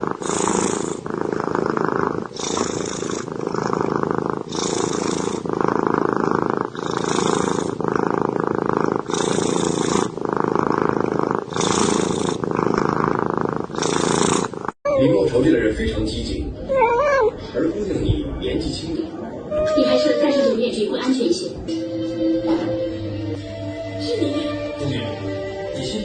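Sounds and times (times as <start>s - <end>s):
cat purring: 0.0s - 15.4s, 16.7s - 17.4s, 18.0s - 20.7s.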